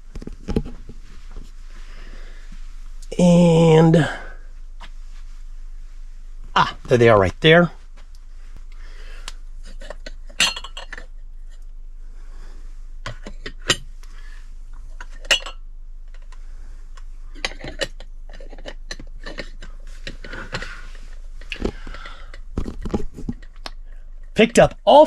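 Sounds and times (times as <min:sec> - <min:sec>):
glass bowls clinking: 0:09.8 - 0:11.1, 0:15.2 - 0:15.6.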